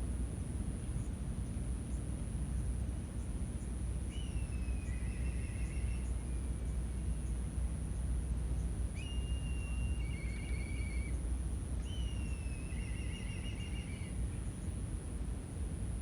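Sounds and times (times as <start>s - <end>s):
bird whistling and trilling: 9.0s - 11.1s.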